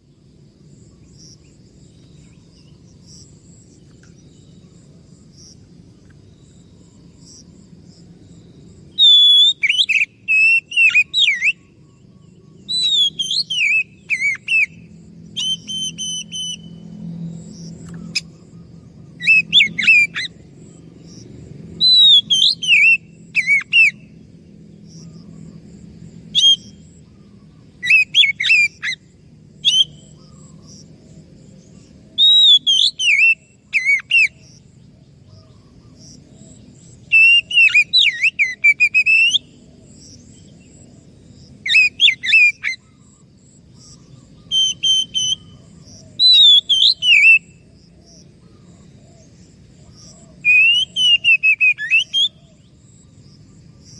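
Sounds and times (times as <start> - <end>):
bird singing whistled phrases: 9.0 - 11.7, 12.6 - 16.8, 19.2 - 20.4, 21.8 - 24.1, 26.4 - 26.8, 27.8 - 29.0, 29.6 - 30.2, 32.2 - 34.4, 37.1 - 39.5, 41.7 - 42.8, 44.4 - 45.6, 46.2 - 47.6, 50.4 - 52.4.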